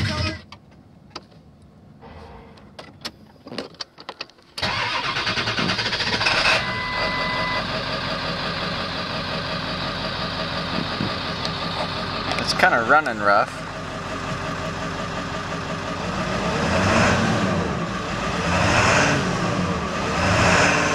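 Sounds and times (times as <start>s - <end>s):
diesel engine starting and idling: 4.5s - 20.9s
short beep: 6.4s - 7.7s.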